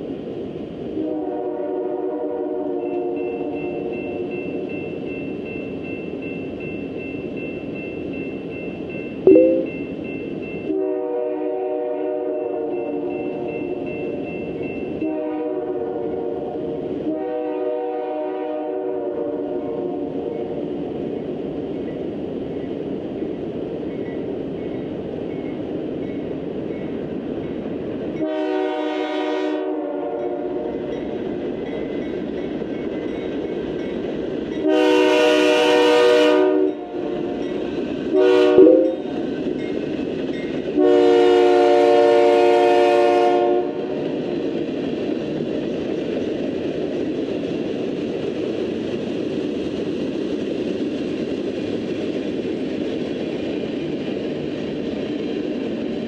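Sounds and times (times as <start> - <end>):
freight train rumbling by: 0.0 - 56.0
train air horn blasts: 1.0 - 3.2, 10.7 - 13.1, 15.0 - 20.0, 28.2 - 30.4, 34.6 - 36.7, 38.1 - 39.1, 40.8 - 43.8.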